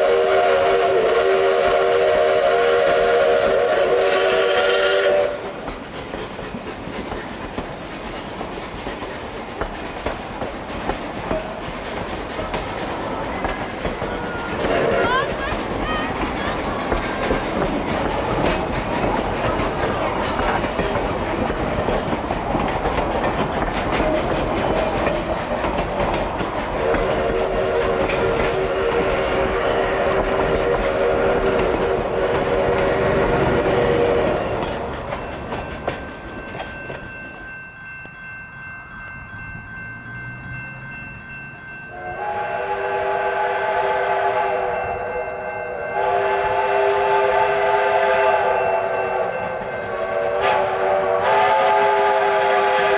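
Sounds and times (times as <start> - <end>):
chime steam whistle blasts: 0.0 - 5.6, 26.8 - 39.0, 39.7 - 52.9
rail clatter: 0.0 - 41.9
steam locomotive rumbling: 0.0 - 52.9.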